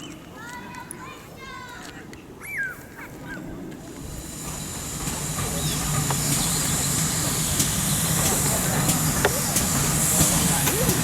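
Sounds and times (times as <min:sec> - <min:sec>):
steam train hissing and rumbling: 0:03.8 - 0:11.0.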